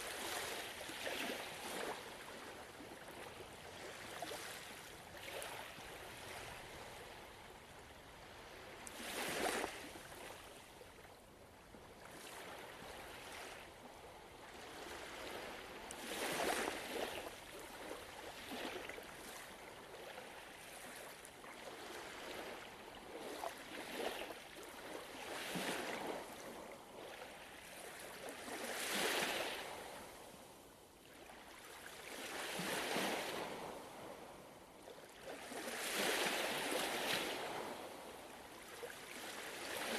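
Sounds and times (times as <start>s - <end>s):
ocean waves washing on shore: 0.0s - 11.0s, 12.0s - 39.9s.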